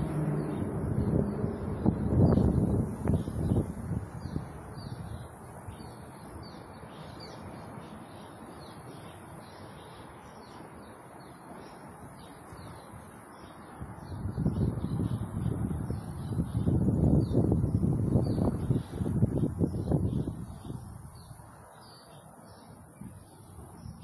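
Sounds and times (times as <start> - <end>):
background rush: 0.0 - 6.9
wind buffeting microphone: 0.0 - 7.6, 13.7 - 21.6, 22.8 - 24.0
small birds chirping: 0.0 - 24.0.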